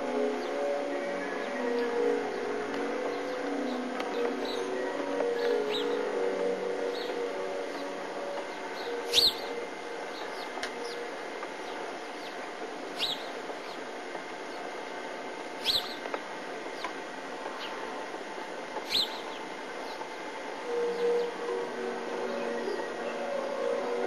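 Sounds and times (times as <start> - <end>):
songbirds chirping: 0.0 - 24.0
steady hiss: 0.0 - 24.0.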